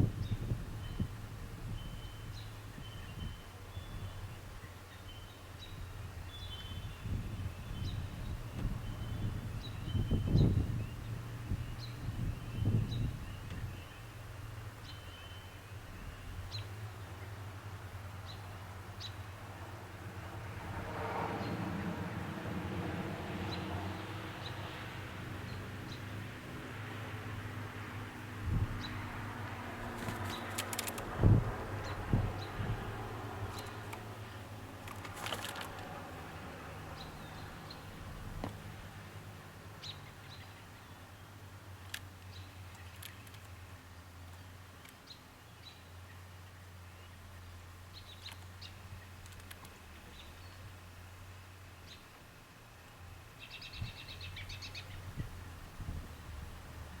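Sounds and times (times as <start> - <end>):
songbird chirps: 0.1 - 19.4, 28.6 - 57.0
clicks and scuffling: 29.9 - 31.1, 34.8 - 35.9.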